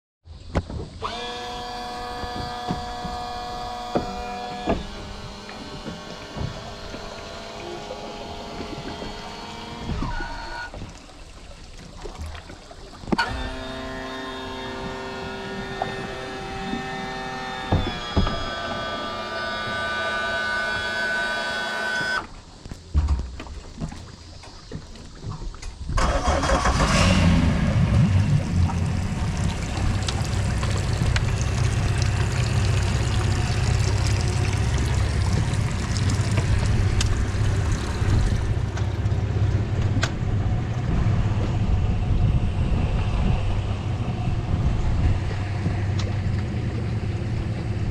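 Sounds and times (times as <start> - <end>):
outboard engine starting and idling: 0.4 - 47.9
electric trim motor whining: 1.0 - 10.8, 13.2 - 22.3, 29.1 - 39.0
thump: 17.7 - 18.5, 22.9 - 24.0.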